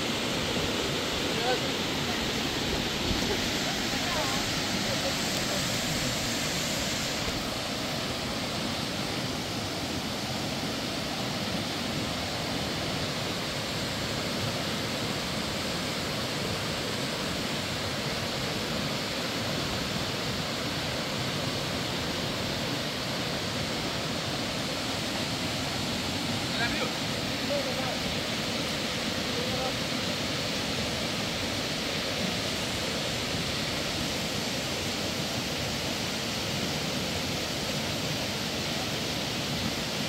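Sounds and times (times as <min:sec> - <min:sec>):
steady rushing noise: 0:00.0 - 0:15.0, 0:23.4 - 0:30.1.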